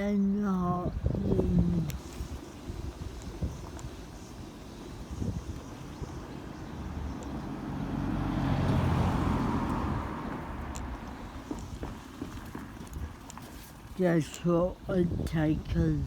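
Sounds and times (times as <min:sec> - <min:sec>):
car passing by: 0:05.1 - 0:13.0.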